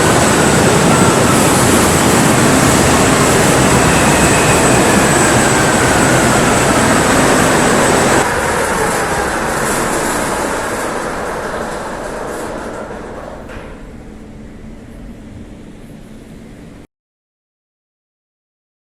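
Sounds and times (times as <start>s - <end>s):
diesel generator running: 0.0s - 11.8s.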